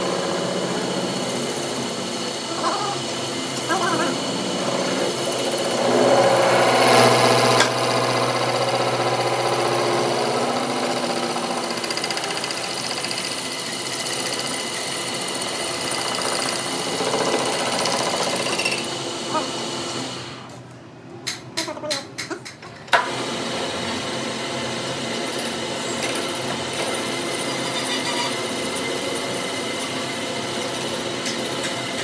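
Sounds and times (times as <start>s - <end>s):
machine tool humming: 0.0s - 19.9s.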